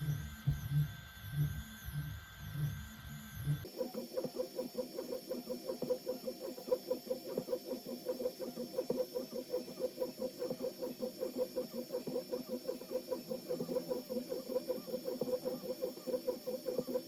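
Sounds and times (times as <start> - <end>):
printer stepper motors chirping: 0.0 - 17.0.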